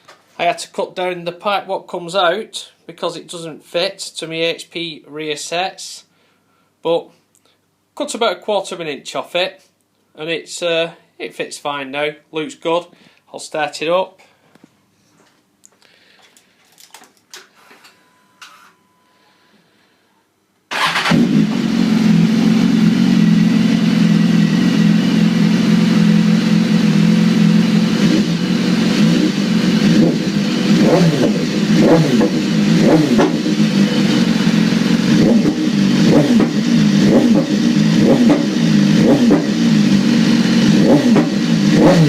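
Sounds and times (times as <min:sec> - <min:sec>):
engine revving blips: 0:20.7 - 0:42.0
motorcycle engine starting and idling: 0:20.7 - 0:42.0.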